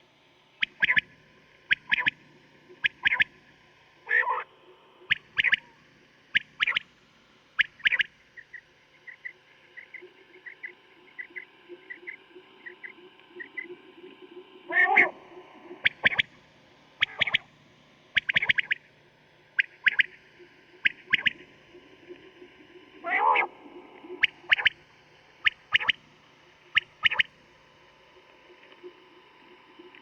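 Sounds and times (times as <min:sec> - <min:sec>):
low hum: 0:00.0 - 0:30.0
quail calling: 0:00.7 - 0:01.0, 0:01.7 - 0:02.2, 0:02.8 - 0:03.3, 0:04.1 - 0:04.4, 0:05.1 - 0:06.8, 0:07.6 - 0:08.5, 0:14.7 - 0:15.2, 0:15.8 - 0:16.3, 0:17.0 - 0:17.5, 0:18.2 - 0:18.8, 0:19.6 - 0:20.2, 0:20.8 - 0:21.4, 0:23.0 - 0:24.8, 0:25.4 - 0:26.0, 0:26.7 - 0:27.3.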